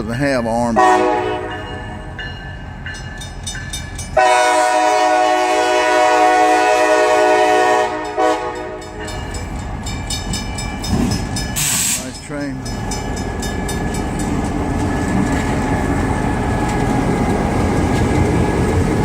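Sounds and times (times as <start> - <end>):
crossing bell ringing: 0.0 - 4.7, 7.4 - 16.6
locomotive air horn blast: 0.8 - 1.7, 4.2 - 9.0.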